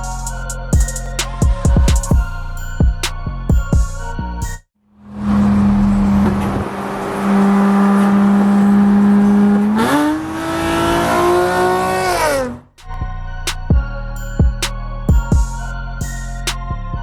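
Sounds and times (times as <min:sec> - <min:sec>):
car engine revving: 0:05.0 - 0:12.9.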